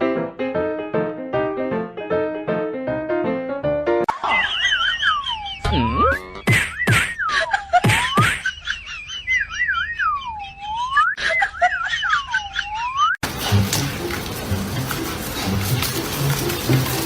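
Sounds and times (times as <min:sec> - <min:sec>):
whistled tune: 0:09.2 - 0:11.3.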